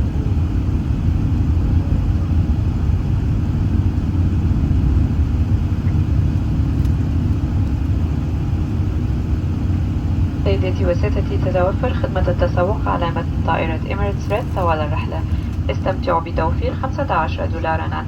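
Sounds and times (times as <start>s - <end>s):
aircraft cabin engine rumble: 0.0s - 18.0s
airflow noise: 5.0s - 18.0s.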